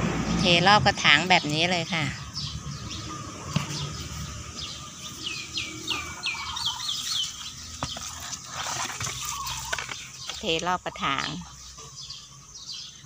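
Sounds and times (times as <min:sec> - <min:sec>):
bird whistling song: 0:02.2 - 0:08.0.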